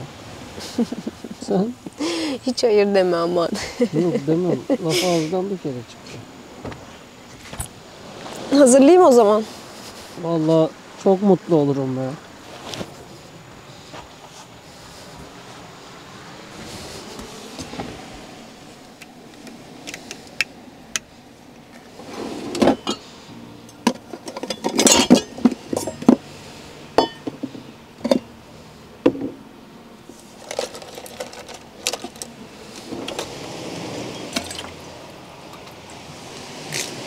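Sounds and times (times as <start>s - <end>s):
cups and cutlery clinking: 22.6s - 23.1s, 23.9s - 26.2s, 27.0s - 28.3s.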